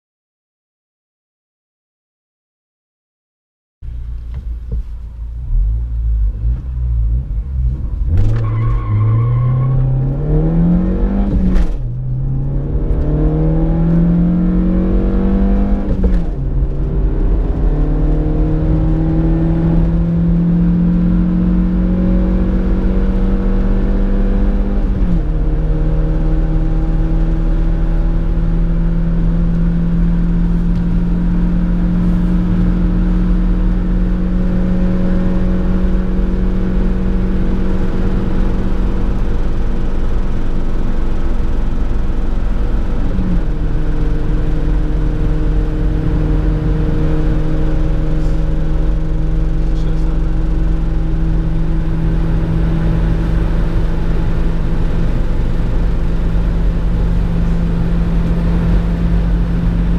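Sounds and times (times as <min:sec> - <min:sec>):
van engine at full throttle: 0:03.8 - 0:59.9
gear change clunk: 0:03.9 - 0:05.4, 0:11.2 - 0:12.1, 0:15.8 - 0:17.7.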